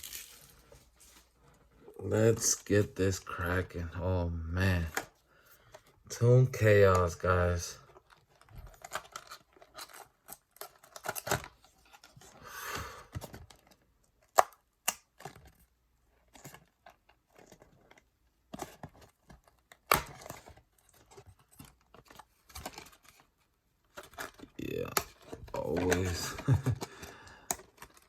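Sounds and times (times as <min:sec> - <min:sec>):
packaging tearing: 0:00.0 - 0:00.7
packaging rustling: 0:00.0 - 0:01.5, 0:23.9 - 0:28.0.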